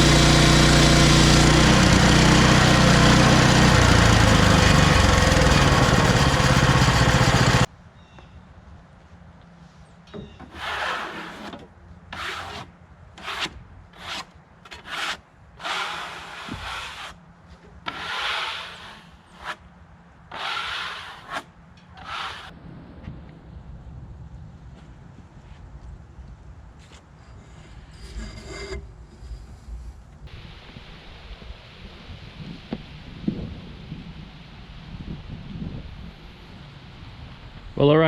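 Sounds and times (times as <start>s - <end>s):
bandsaw sawmill running: 0.0s - 7.7s, 14.8s - 17.2s, 17.9s - 19.6s, 20.3s - 22.5s
rubbing strokes across wood: 10.4s - 19.7s, 20.3s - 22.5s.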